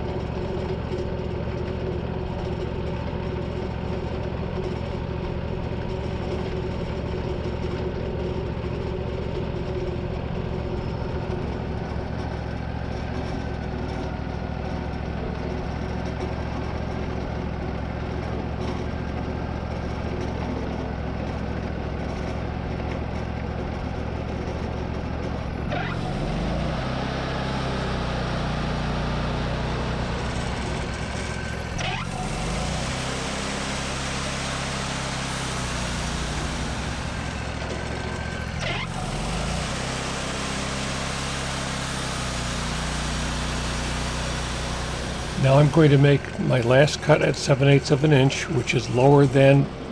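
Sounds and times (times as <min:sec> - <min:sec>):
sawmill engine running: 0:26.0 - 0:49.9.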